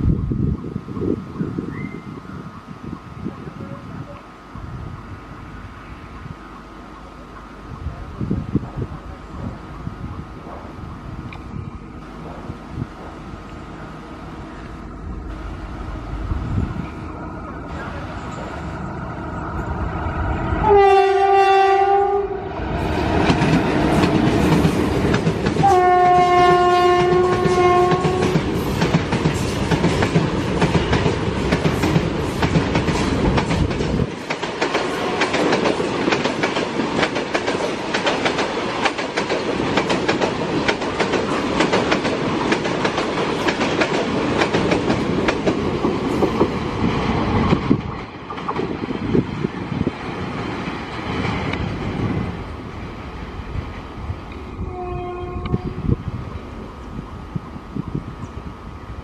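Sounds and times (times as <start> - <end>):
freight train rumbling past: 0.0 - 59.0
locomotive horn blasts: 20.6 - 22.5, 25.6 - 28.4, 54.6 - 55.8
wheels clacking over rail joints: 23.0 - 52.4.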